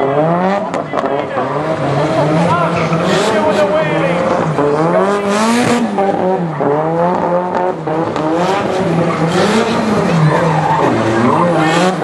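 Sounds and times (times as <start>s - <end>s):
car engine revving: 0.0s - 12.0s
tyres squealing: 8.9s - 12.0s.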